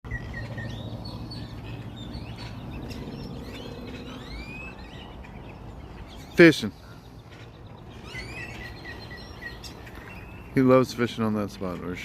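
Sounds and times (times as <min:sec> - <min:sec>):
steady low hum: 0:00.1 - 0:06.1
songbirds chirping: 0:00.1 - 0:12.0.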